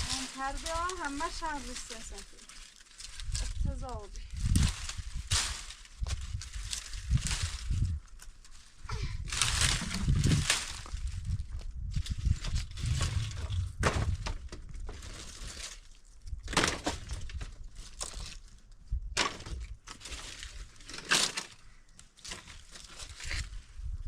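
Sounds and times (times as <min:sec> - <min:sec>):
sharp cracks and crunches: 0:00.0 - 0:23.6
low rumble: 0:03.2 - 0:14.8.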